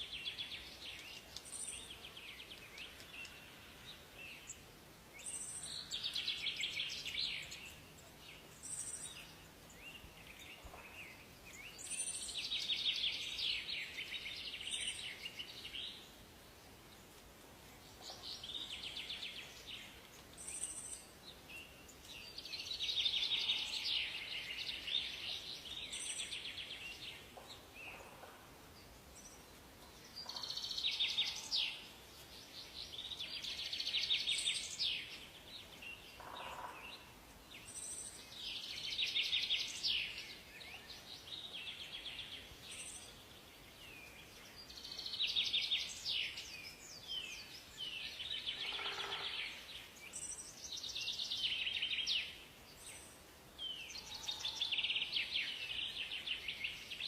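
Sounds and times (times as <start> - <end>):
faint steady hiss: 0.0 - 57.0
songbirds trilling: 17.8 - 57.0.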